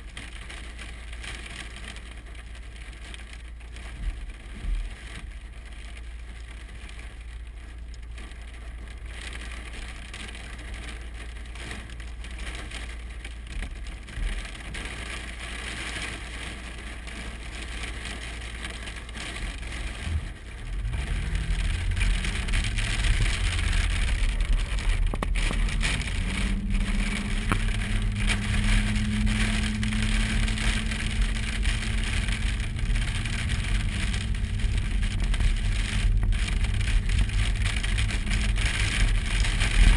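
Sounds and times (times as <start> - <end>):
road noise: 0.0 - 39.9
vehicle engine accelerating: 19.8 - 39.9.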